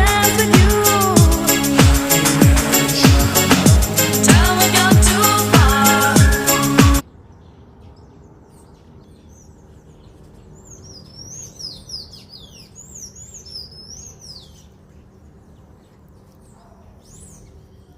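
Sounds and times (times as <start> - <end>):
songbird chirping: 0.0 - 17.9.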